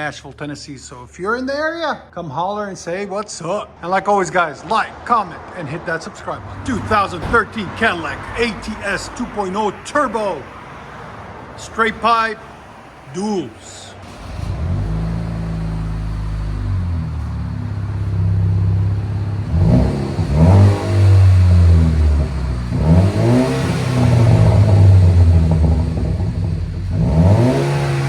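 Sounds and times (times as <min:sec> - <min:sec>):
car engine idling and revving: 0:06.3 - 0:28.0.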